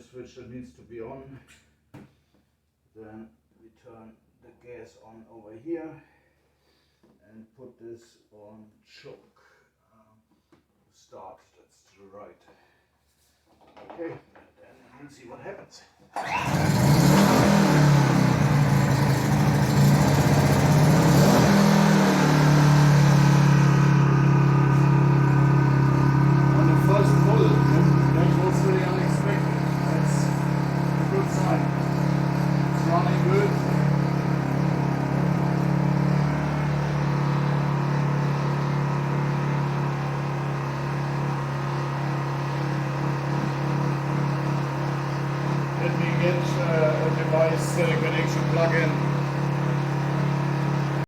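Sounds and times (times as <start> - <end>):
generator engine running: 16.2 - 51.0.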